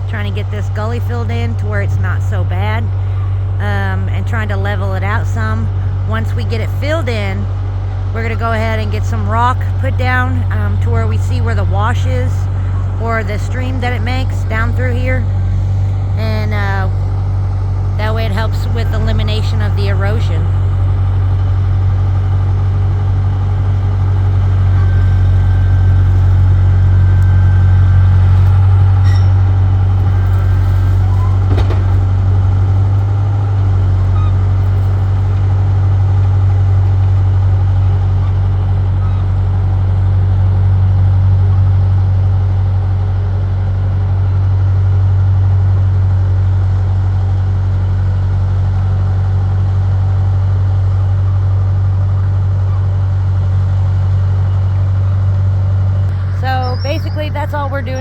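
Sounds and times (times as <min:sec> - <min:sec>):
bulldozer diesel engine droning: 0:00.0 - 0:58.0
metallic clanks: 0:28.4 - 0:35.5.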